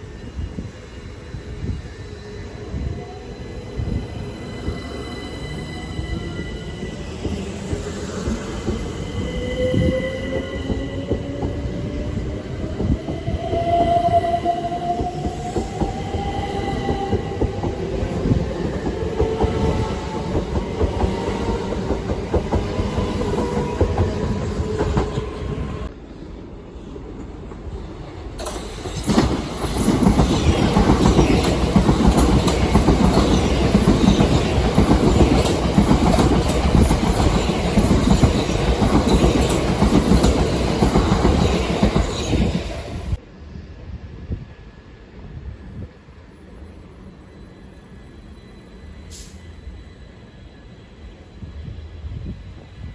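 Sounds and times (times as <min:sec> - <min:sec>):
train wheel and rail clatter: 0:00.0 - 0:25.9, 0:27.1 - 0:43.2.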